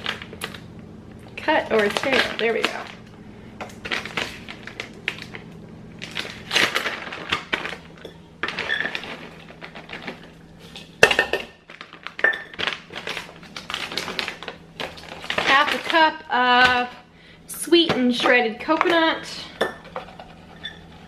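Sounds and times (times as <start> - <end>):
plastic bag crinkling: 6.0 - 10.5, 11.7 - 16.0.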